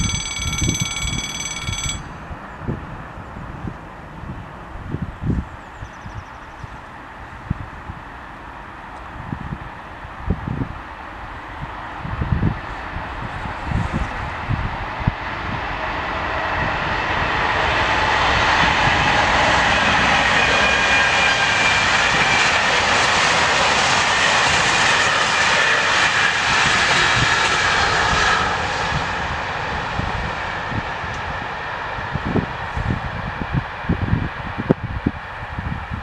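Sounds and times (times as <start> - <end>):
faint high whining tones: 0.0 - 3.4.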